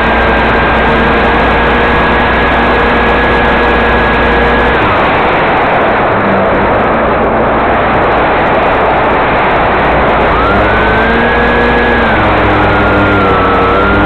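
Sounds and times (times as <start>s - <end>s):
model plane motor whining: 0.0s - 5.6s, 9.9s - 14.0s
loud steady rushing noise: 0.0s - 14.0s.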